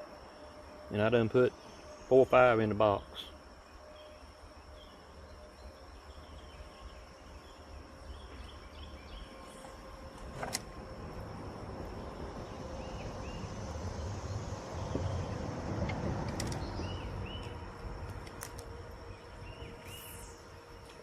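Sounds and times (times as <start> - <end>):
insects droning: 0.0 - 21.0
traffic rumble on bridge: 5.2 - 21.0.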